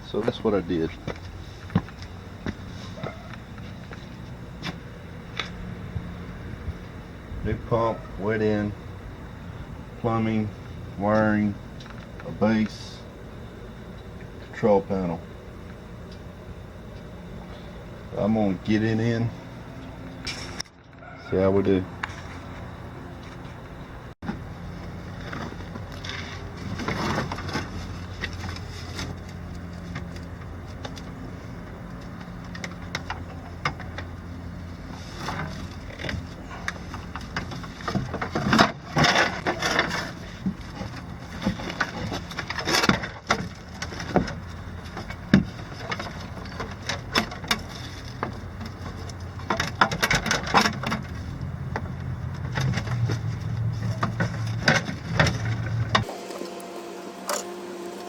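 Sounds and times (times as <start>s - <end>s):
steady low hum: 0.0s - 58.0s
tools and parts clattering: 25.0s - 31.2s, 34.8s - 56.1s.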